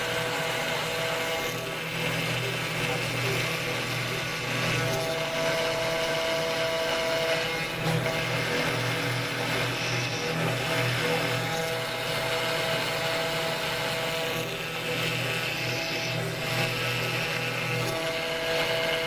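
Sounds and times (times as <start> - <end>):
router spindle cutting: 0.0 - 19.0.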